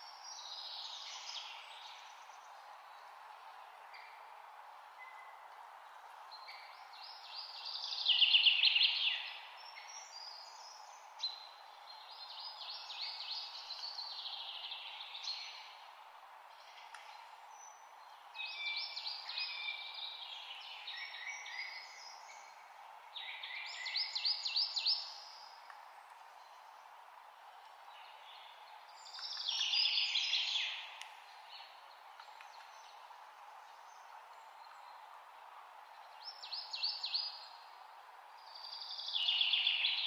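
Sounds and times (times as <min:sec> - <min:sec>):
steady background hiss: 0:00.0 - 0:40.0.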